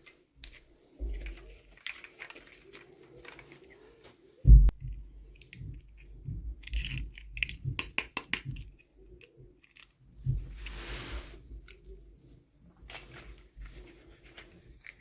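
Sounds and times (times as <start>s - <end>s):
plastic packaging clicks and crinkles: 0.0s - 4.2s, 12.8s - 15.0s
plastic rustling: 0.0s - 4.4s, 12.7s - 15.0s.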